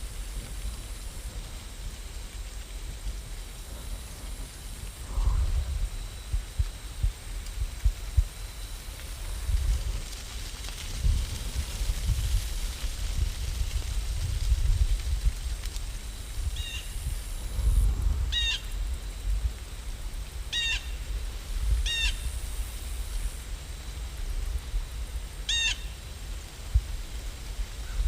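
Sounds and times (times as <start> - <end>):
steady rain: 0.0 - 28.0
bird calling: 20.5 - 21.0, 25.5 - 26.0.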